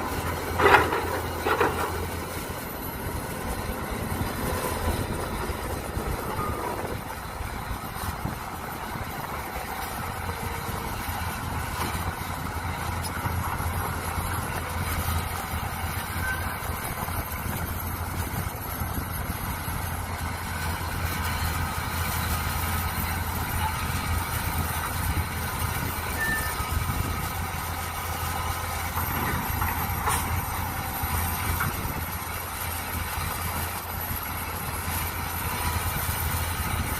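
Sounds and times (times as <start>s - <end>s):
excavator engine running: 0.0s - 36.9s.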